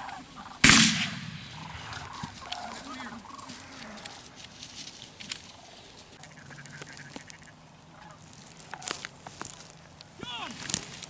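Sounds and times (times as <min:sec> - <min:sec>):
ducks quacking: 0:00.0 - 0:00.8, 0:01.4 - 0:04.4, 0:05.6 - 0:09.0.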